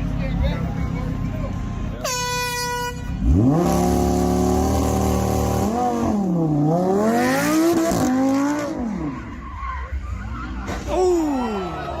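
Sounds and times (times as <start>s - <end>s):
car engine revving: 3.0s - 9.3s.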